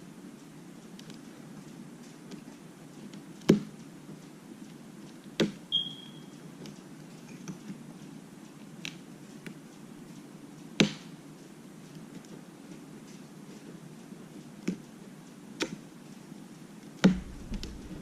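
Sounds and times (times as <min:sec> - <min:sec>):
brief high squeak: 0:05.7 - 0:06.3.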